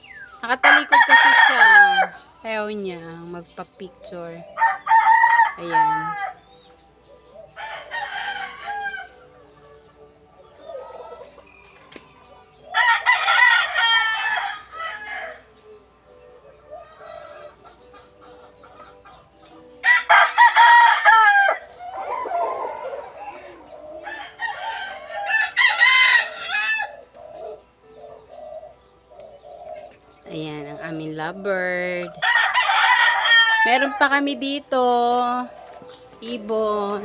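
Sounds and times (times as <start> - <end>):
bird calling: 16.7 - 37.0.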